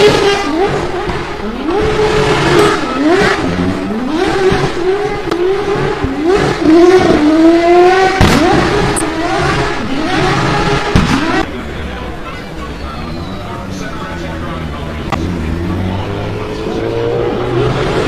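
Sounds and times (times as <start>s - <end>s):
race car engine revving: 0.0s - 18.0s
sharp crack: 8.2s - 8.8s.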